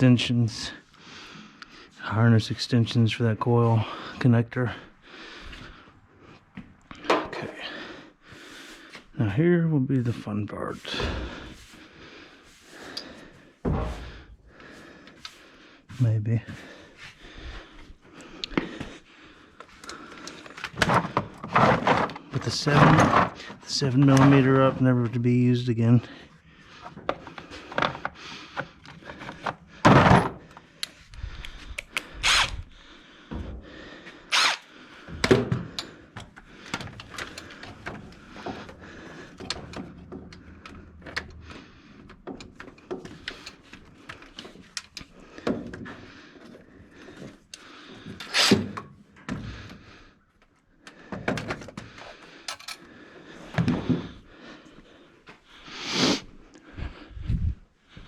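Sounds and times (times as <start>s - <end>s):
metallic tool clicks and clanks: 52.5s - 52.9s.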